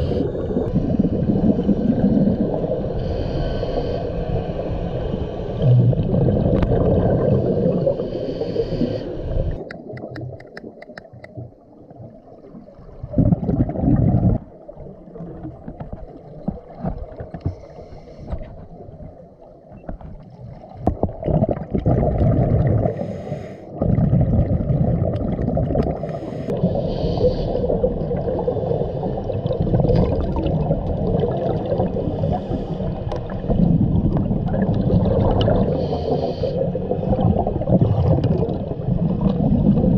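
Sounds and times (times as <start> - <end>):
underwater exhaust bubbles: 0.0 - 39.9.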